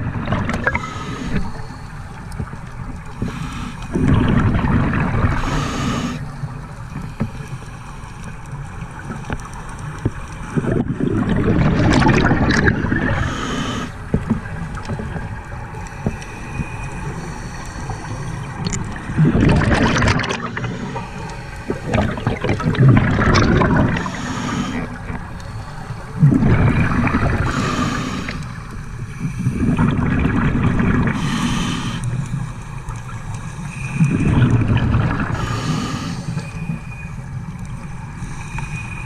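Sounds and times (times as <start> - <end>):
exhaled bubbles gurgling: 0.0 - 6.8, 10.0 - 38.2
regulator hiss: 3.0 - 3.9, 5.4 - 6.3, 13.2 - 14.0, 23.8 - 29.7, 31.2 - 32.7, 35.4 - 37.4.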